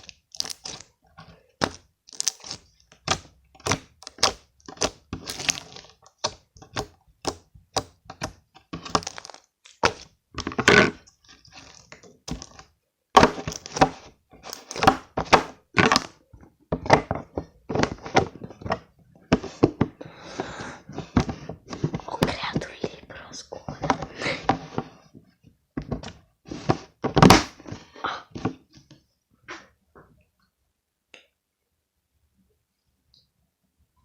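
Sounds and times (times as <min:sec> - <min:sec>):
slime popping and clicking: 0:01.6 - 0:08.0.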